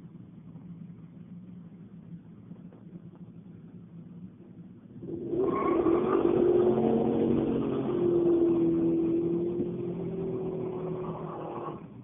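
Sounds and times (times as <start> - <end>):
car engine at high revs: 5.0 - 12.0.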